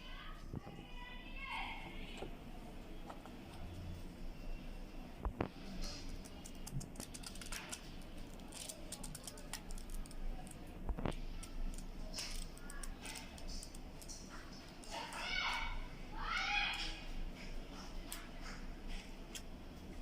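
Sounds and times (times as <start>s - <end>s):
paper banknotes rustling: 5.8s - 10.7s.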